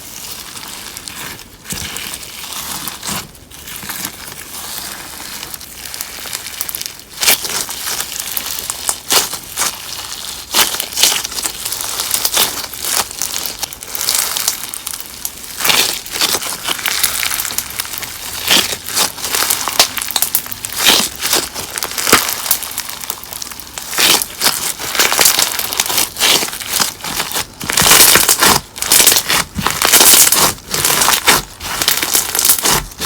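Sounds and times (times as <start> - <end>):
slime crunching and crackling: 0.0 - 33.0.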